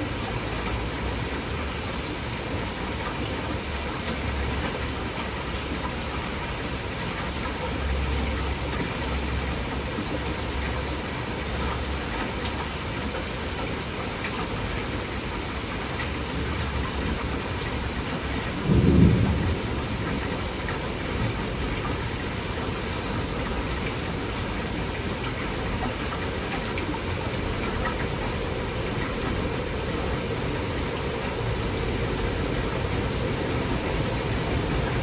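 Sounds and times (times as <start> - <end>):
heavy rain: 0.0 - 35.0
thunder rumbling: 18.3 - 23.5, 28.1 - 35.0.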